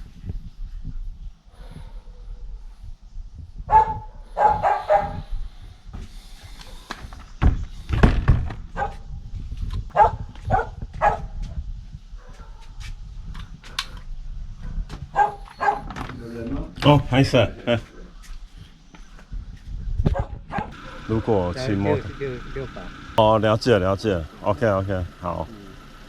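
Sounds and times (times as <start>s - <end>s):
dog barking: 3.7s - 5.2s, 8.8s - 9.0s, 9.9s - 11.4s, 12.2s - 12.8s, 14.6s - 16.0s, 20.1s - 21.2s.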